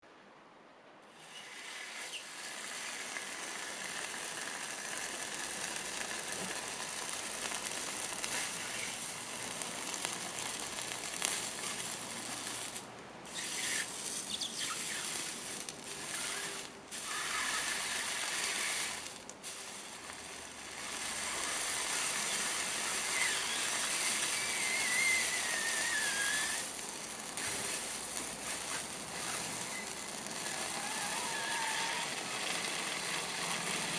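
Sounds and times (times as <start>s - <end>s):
hot metal sizzling in wet food: 1.1s - 33.9s
faint wavering whistle: 23.0s - 26.6s.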